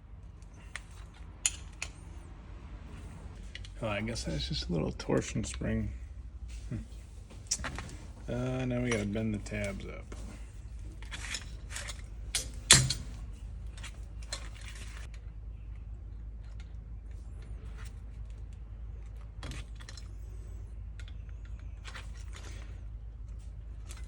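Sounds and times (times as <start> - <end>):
steady low hum: 0.0 - 24.0
metal clicks and clinks: 0.6 - 2.1.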